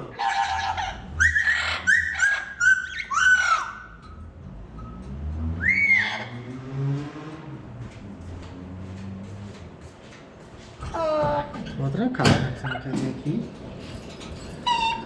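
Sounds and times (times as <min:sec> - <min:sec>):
parrot squawking: 0:00.0 - 0:04.3, 0:05.6 - 0:06.5, 0:14.4 - 0:15.0.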